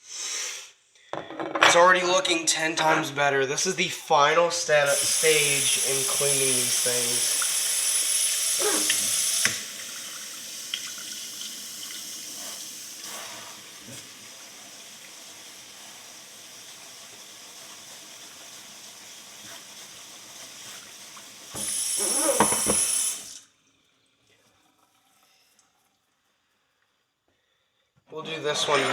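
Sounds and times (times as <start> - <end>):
sink tap running water: 4.8 - 23.5.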